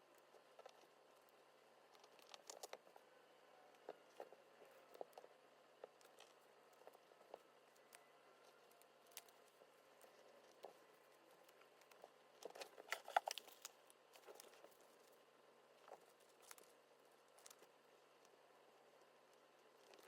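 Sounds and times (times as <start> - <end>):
paper crinkling: 11.6 - 15.2.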